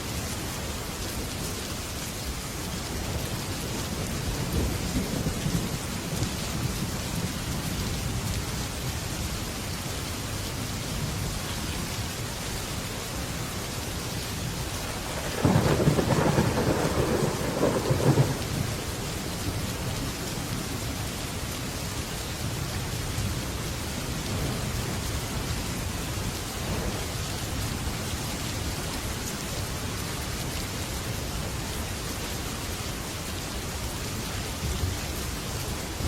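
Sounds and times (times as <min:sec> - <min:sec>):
heavy rain on a metal roof: 0:00.0 - 0:36.0
thunder rumbling: 0:14.9 - 0:19.9.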